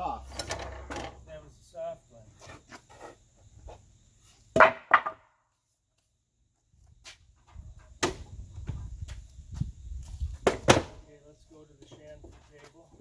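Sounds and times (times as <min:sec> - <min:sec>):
wooden knocks of lumber: 0:04.5 - 0:05.3, 0:10.4 - 0:11.0.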